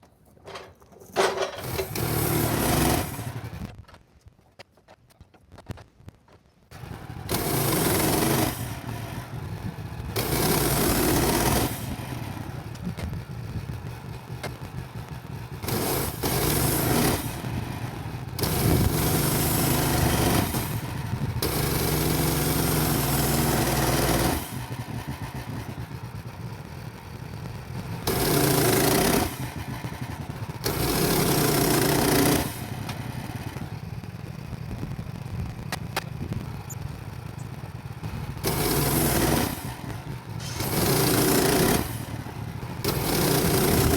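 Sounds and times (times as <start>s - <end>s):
sawmill engine running: 0.4s - 3.7s, 6.7s - 43.9s
band saw blade cutting wood: 38.4s - 43.9s.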